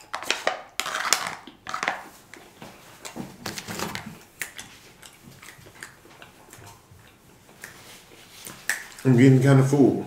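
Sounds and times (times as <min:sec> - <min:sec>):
man chewing food: 0:00.0 - 0:09.1.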